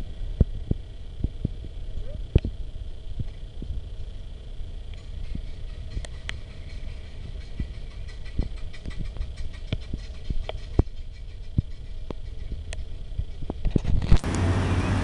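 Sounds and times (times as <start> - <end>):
vintage car engines rolling past: 4.9 - 15.0.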